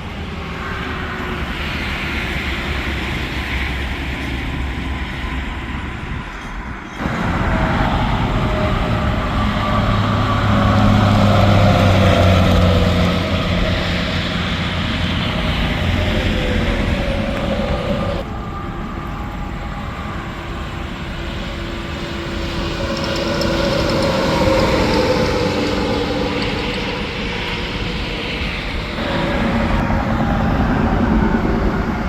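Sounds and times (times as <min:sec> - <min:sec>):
trucks passing at speed: 0:00.0 - 0:18.6, 0:19.6 - 0:32.0
truck engine hum: 0:07.0 - 0:32.0.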